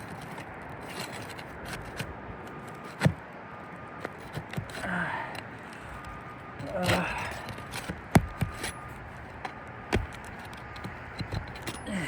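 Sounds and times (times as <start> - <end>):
clicks and knocks on roof shingles: 6.6 - 12.0.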